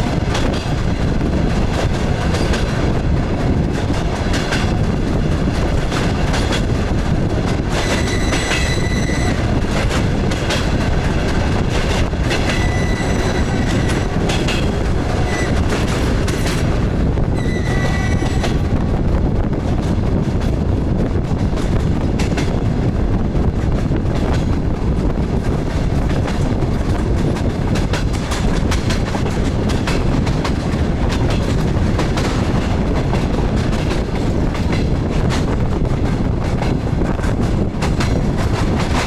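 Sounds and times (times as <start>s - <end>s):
train rumble: 0.0s - 39.0s
wheels clicking over rail joints: 23.6s - 39.0s.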